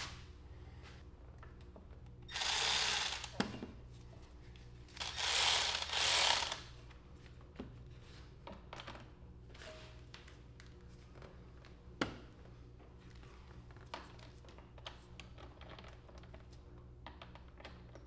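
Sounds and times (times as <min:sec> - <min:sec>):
hand ratchet clicking: 0:02.3 - 0:03.4, 0:05.0 - 0:06.6.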